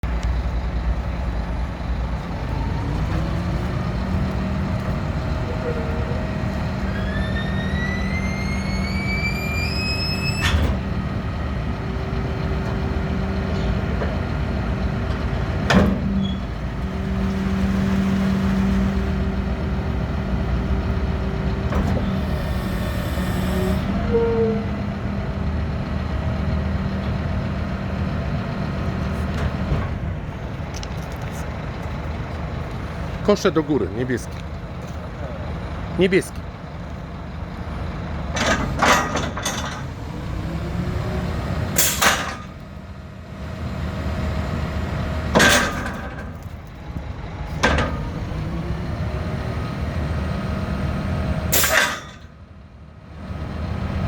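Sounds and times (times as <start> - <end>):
garbage truck diesel engine: 0.0 - 54.0
rising whine: 4.8 - 11.0.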